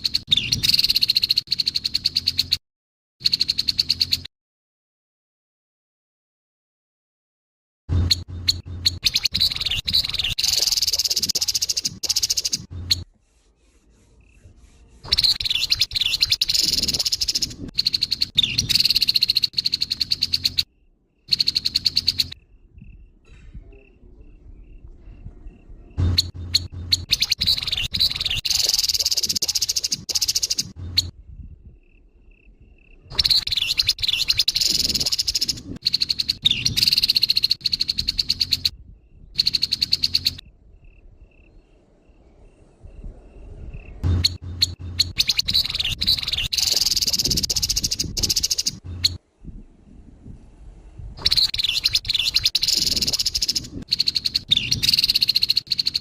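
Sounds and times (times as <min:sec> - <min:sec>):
bird rasping chatter calls: 0:08.0 - 0:20.7, 0:21.3 - 0:22.4, 0:26.0 - 0:31.1, 0:33.2 - 0:38.7, 0:39.4 - 0:40.4, 0:44.0 - 0:49.2, 0:51.2 - 0:56.0.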